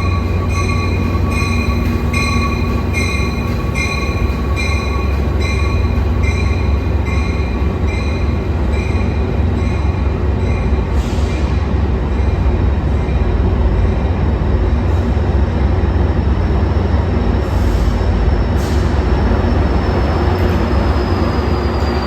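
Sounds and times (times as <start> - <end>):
locomotive bell ringing: 0.0 - 10.8
low rumble of train rolling: 0.0 - 22.0.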